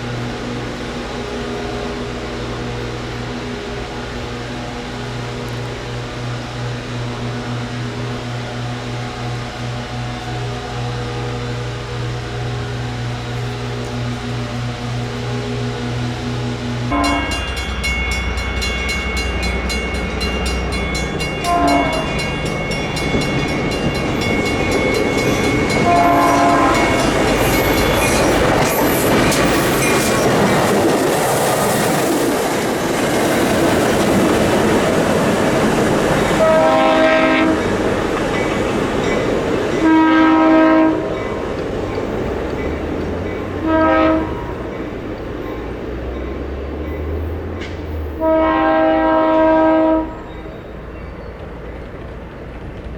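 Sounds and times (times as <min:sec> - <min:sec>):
train horn blasts: 0:00.0 - 0:32.4, 0:35.0 - 0:38.1, 0:39.2 - 0:42.1, 0:43.4 - 0:44.8, 0:48.1 - 0:50.5
train wheels clattering: 0:00.0 - 0:52.9
bell ringing rapidly: 0:17.0 - 0:30.7.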